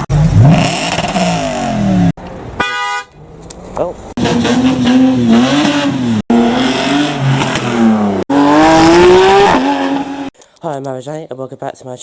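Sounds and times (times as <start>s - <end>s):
car engines revving hard: 0.0s - 2.2s, 4.1s - 10.3s.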